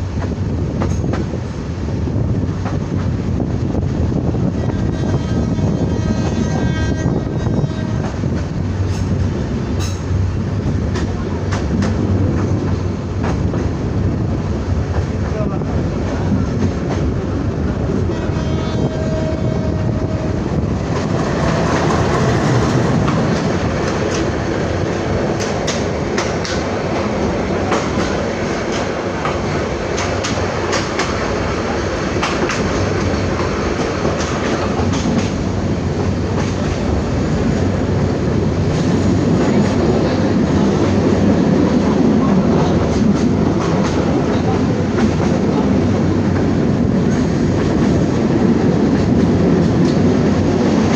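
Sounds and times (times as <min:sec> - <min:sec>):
train wheels clacking over rail joints: 0:00.0 - 0:01.4, 0:07.9 - 0:13.8, 0:20.8 - 0:37.0, 0:41.8 - 0:48.2
train rumbling: 0:00.0 - 0:50.9.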